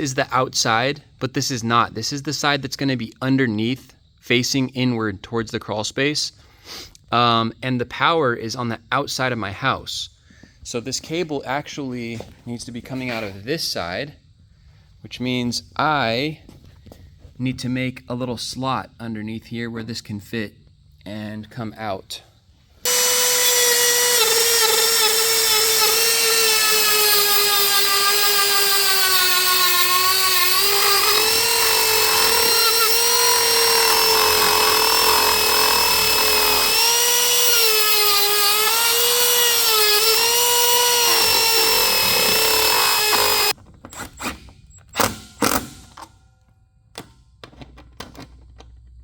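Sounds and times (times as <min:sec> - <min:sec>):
rotary tool cutting wood: 0:22.9 - 0:45.9.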